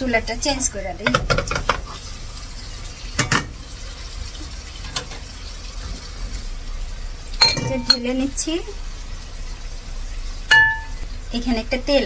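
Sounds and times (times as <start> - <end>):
potatoes sizzling in oil: 0.0 - 12.0
cookware clinking: 3.2 - 3.5, 7.4 - 8.2, 10.5 - 11.0.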